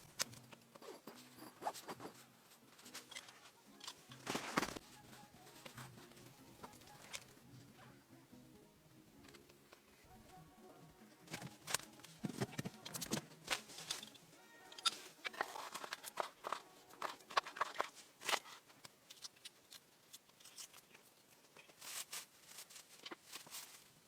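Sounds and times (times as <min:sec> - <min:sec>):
crackling handling sounds: 0:00.0 - 0:08.0, 0:11.1 - 0:24.0.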